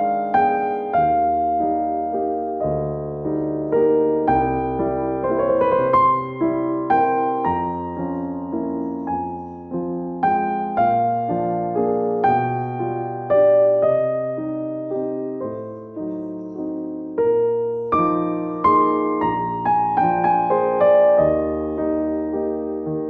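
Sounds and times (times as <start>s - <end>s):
slow gentle piano music: 0.0s - 23.0s.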